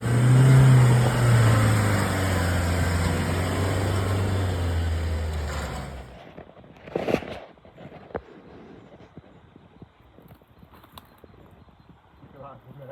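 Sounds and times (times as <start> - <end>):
motor winding down: 0.0 - 6.1.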